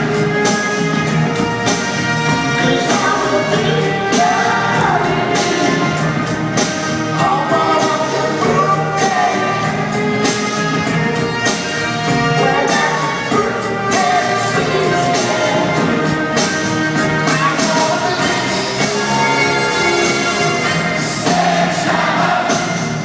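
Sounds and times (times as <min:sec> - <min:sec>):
live pop-rock band playing: 0:00.0 - 0:23.0
steady drum beat: 0:00.0 - 0:23.0
person singing: 0:02.5 - 0:06.3, 0:07.1 - 0:10.4, 0:12.1 - 0:23.0.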